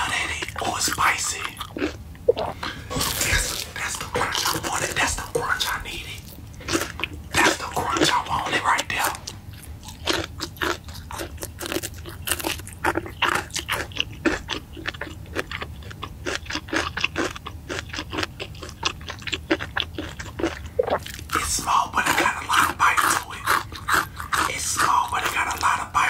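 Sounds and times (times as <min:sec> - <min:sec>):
crunching crispy food: 0:06.8 - 0:26.0.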